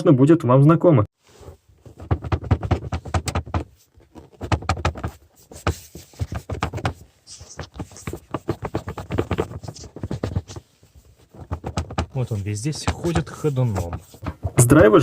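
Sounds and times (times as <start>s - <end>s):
plastic pipe rattling and knocking: 1.8s - 15.0s.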